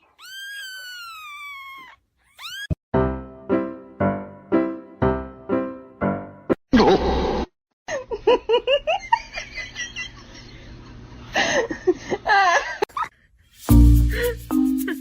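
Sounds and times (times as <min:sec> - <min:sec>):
person laughing: 0:06.7 - 0:07.2.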